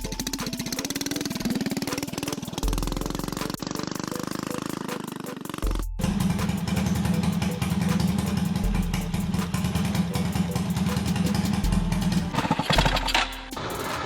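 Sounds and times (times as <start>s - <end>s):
small petrol engine running: 0.0s - 14.0s.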